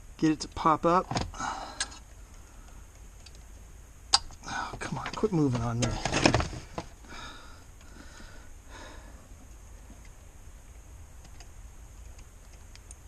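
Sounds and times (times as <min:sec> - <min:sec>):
steady low hum: 0:00.0 - 0:13.0
light clicks of small parts: 0:01.8 - 0:04.4, 0:10.8 - 0:13.0.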